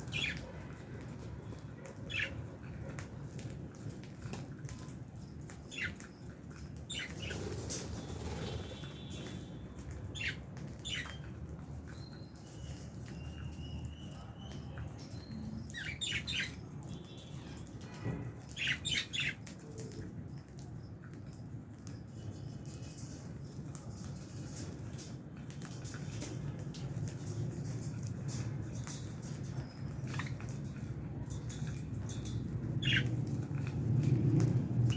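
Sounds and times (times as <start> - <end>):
lovebirds chirping and squawking: 0.0 - 34.9.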